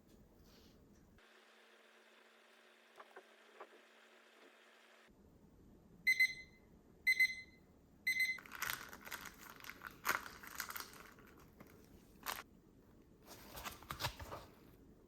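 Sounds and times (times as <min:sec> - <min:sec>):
short electronic beeps: 0:06.1 - 0:08.4
packaging crinkling and rustling: 0:08.4 - 0:12.4, 0:13.3 - 0:14.7.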